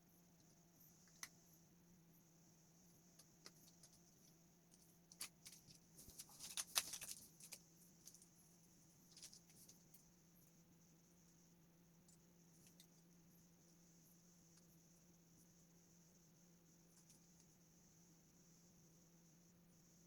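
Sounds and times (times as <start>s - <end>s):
faint hum: 0.0s - 20.0s
small clicks and rattling: 0.4s - 1.4s, 3.0s - 8.4s, 9.0s - 10.1s, 12.1s - 13.1s.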